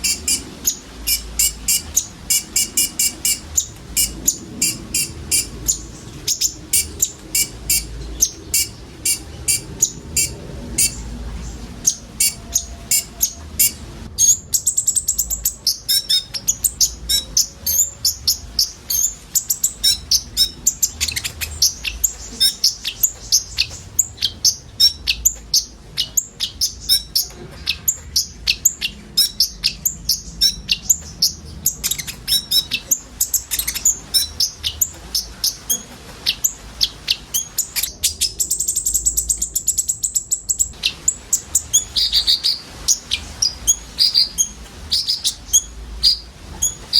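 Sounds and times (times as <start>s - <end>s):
sunbirds chipping and trilling: 0.0s - 46.9s.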